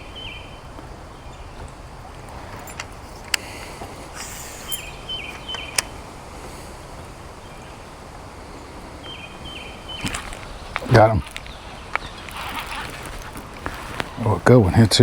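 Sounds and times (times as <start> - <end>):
bird call: 0.0 - 15.0
wind noise hiss: 0.0 - 15.0
sharp clicks: 2.3 - 6.1.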